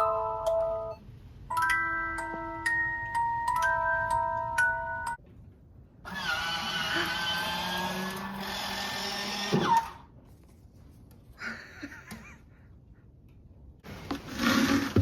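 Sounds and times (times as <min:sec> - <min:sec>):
power tool whining: 0:06.1 - 0:10.0.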